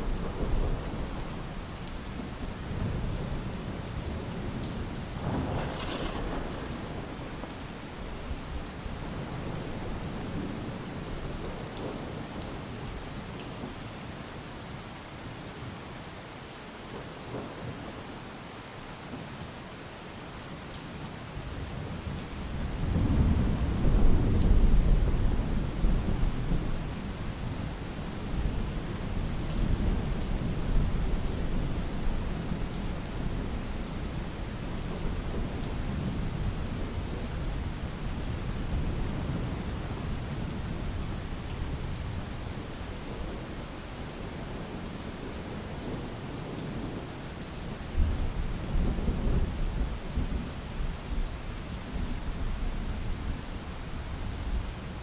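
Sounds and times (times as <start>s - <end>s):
steady rain: 0.0s - 55.0s
thunder rumbling: 2.7s - 12.0s.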